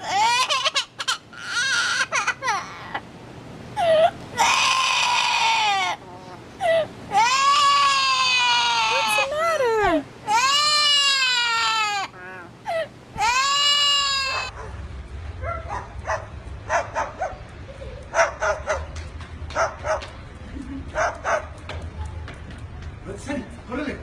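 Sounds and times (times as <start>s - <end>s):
bird wailing cries: 0.0s - 3.1s, 3.7s - 14.6s.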